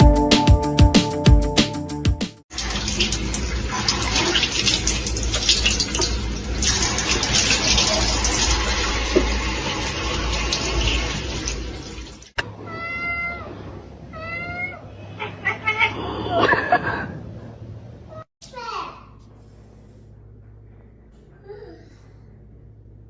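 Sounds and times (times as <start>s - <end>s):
water running and splashing: 2.5s - 12.4s
cat meowing: 12.4s - 16.3s.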